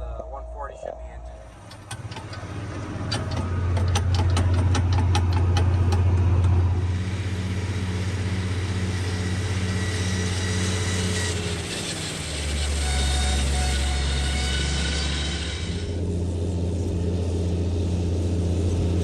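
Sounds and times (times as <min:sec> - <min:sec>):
low regular pulse: 0:00.0 - 0:04.9
high steady whine: 0:00.0 - 0:11.7
tractor engine running: 0:01.4 - 0:12.4
sharp clicks: 0:01.5 - 0:06.6.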